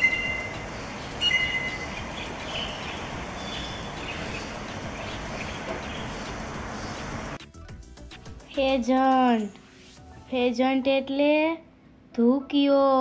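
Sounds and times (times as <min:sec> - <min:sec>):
bird whistling: 0:00.0 - 0:06.2
faint bird chirps: 0:00.0 - 0:06.2
outdoor hiss: 0:00.0 - 0:07.4.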